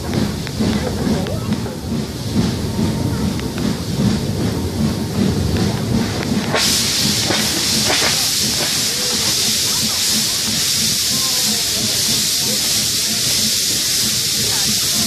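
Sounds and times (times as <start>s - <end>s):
steam hissing: 0.0s - 15.0s
steam train rumble: 0.0s - 15.0s.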